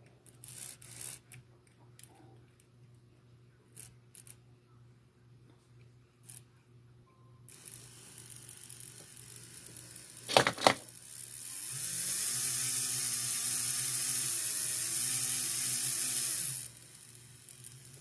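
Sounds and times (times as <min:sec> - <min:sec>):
small electric motor whining: 0:00.4 - 0:01.2, 0:07.5 - 0:10.3, 0:10.9 - 0:18.0.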